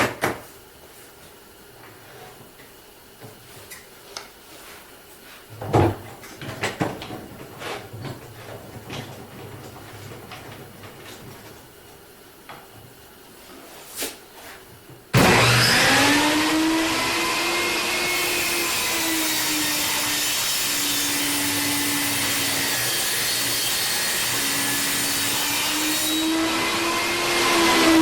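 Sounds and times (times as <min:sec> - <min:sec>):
table saw running: 0:15.2 - 0:28.0.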